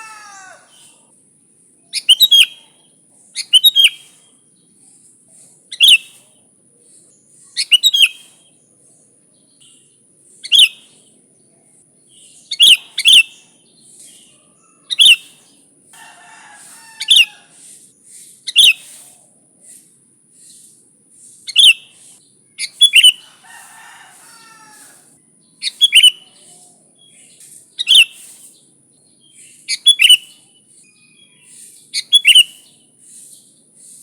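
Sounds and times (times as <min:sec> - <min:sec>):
bird calling sharp notes: 0:25.6 - 0:26.2, 0:32.0 - 0:32.6.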